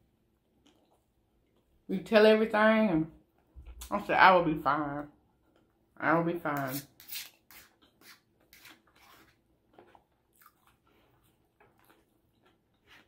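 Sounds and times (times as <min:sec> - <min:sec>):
chewing: 0:00.4 - 0:01.7, 0:09.0 - 0:13.0.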